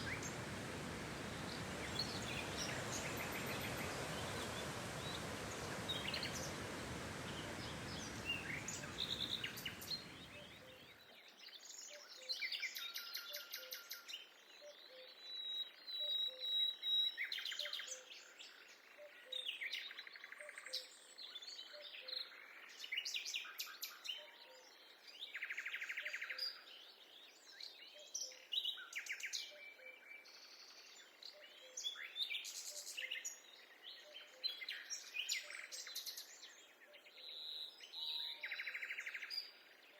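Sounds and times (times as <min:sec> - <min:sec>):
steady rushing noise: 0:00.0 - 0:10.6
birds singing and calling: 0:00.0 - 0:13.4.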